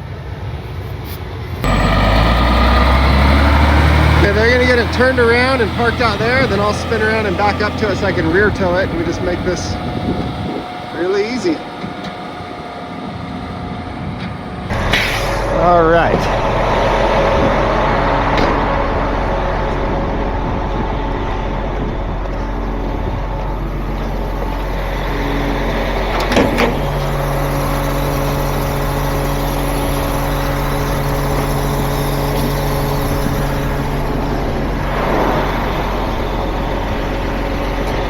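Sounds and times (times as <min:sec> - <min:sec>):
tow truck engine running: 0:01.4 - 0:38.0
short sharp burst of noise: 0:14.7 - 0:18.8.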